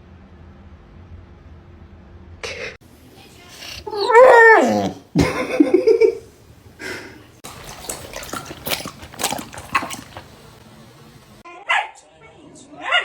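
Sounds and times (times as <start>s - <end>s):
dog wet mouth clicks and smacks: 7.4s - 11.3s.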